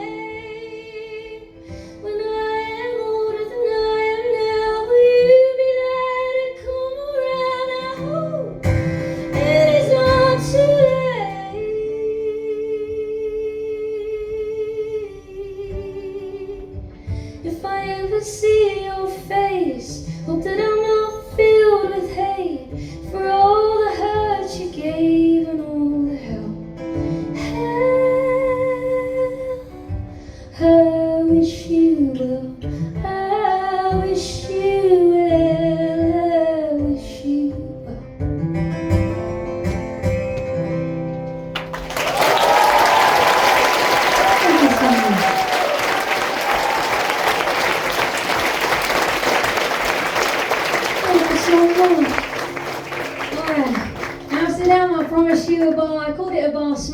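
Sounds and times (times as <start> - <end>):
woman singing: 0.0 - 26.7, 27.3 - 38.1, 51.0 - 52.2, 53.3 - 56.9
guitar accompaniment: 0.0 - 56.9.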